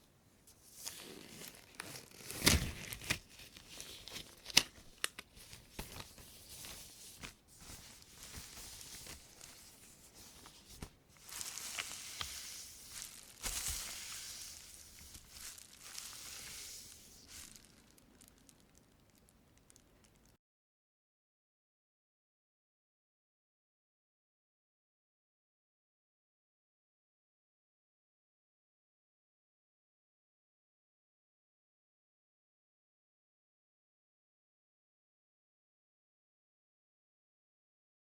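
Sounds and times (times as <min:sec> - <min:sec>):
plastic bag crinkling: 0:00.7 - 0:20.3.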